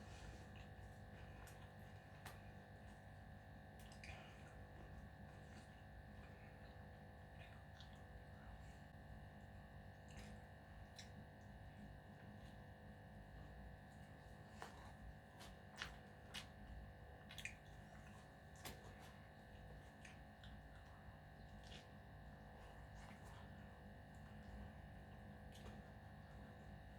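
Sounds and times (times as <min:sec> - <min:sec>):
chewing clicks and smacks: 0:03.8 - 0:04.6, 0:07.4 - 0:08.1, 0:10.1 - 0:11.6, 0:14.6 - 0:23.6.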